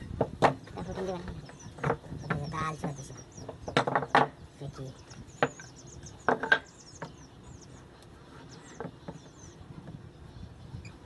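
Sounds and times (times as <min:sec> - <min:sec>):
wood knocks: 0:00.2 - 0:00.7, 0:01.7 - 0:04.4, 0:05.4 - 0:07.2
faint bird chirping: 0:00.6 - 0:03.8, 0:04.4 - 0:11.0.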